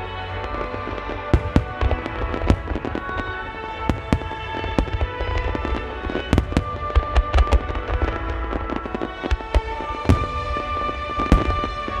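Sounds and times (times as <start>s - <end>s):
fireworks bursting: 0.0s - 12.0s
music playing: 0.0s - 12.0s.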